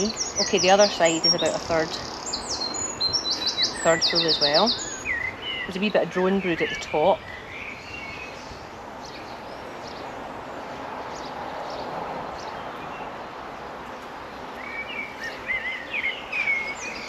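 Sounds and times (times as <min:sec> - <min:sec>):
honeybees humming: 0:00.0 - 0:17.0
songbird chirping and trilling: 0:00.0 - 0:17.0.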